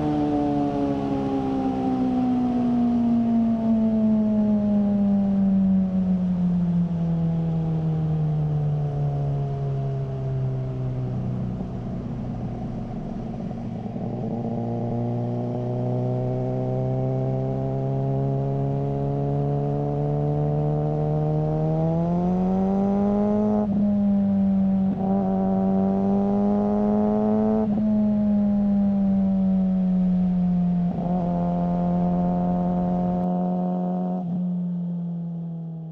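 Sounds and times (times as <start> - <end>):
motorcycle engine running: 11.1 - 34.6.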